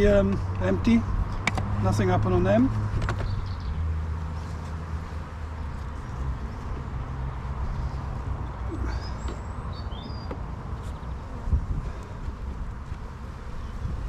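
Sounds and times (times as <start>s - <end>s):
bird chirps: 8.8s - 11.1s.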